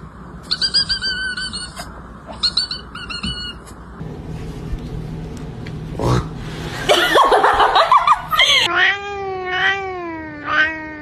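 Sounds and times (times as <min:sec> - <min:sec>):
cat chirping: 0:00.4 - 0:03.8.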